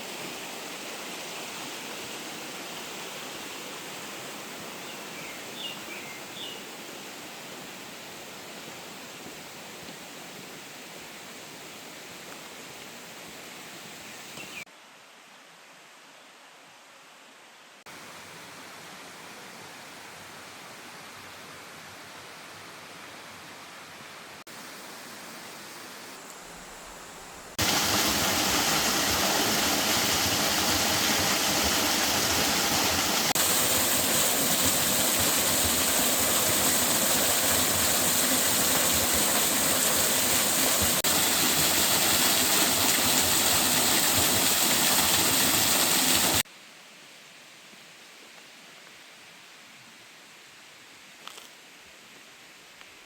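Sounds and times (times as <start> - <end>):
faint water hiss: 0.0 - 53.0
waterfall rushing: 25.1 - 46.4.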